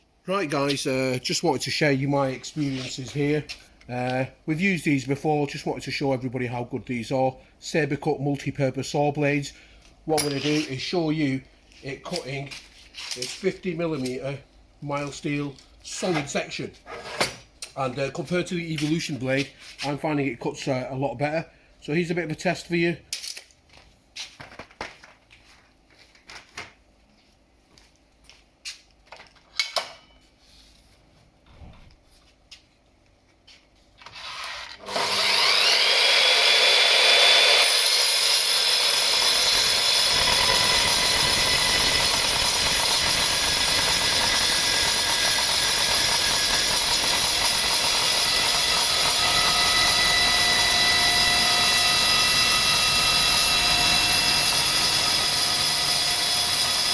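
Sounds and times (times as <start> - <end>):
circular saw cutting steel: 34.2 - 56.9.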